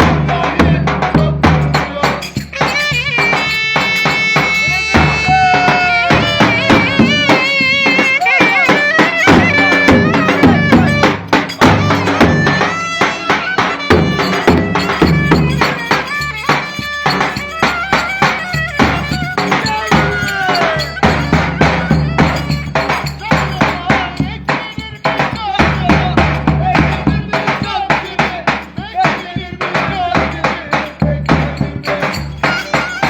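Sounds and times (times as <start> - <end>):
quick steady drum beats: 0.0 - 33.0
folk dance band music: 1.3 - 27.9, 28.8 - 33.0
wavering gliding lead melody: 2.7 - 22.8.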